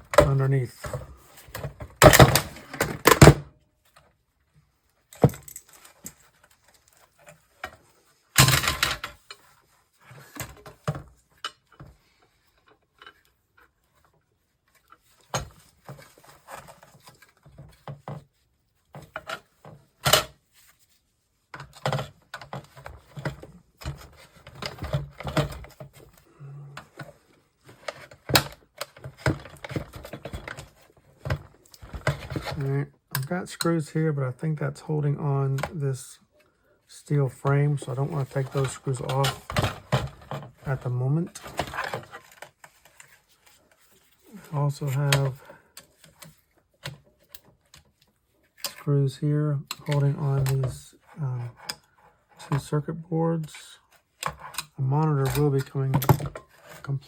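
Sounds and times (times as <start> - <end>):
handling rattles: 5.1 - 7.8.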